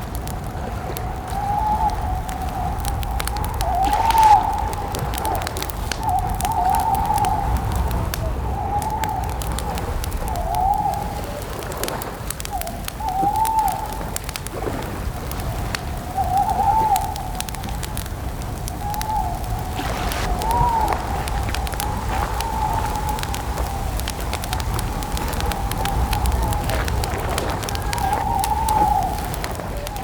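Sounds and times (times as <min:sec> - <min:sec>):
campfire crackling and popping: 0:00.0 - 0:30.0
owl hooting: 0:01.3 - 0:07.6, 0:18.8 - 0:24.1.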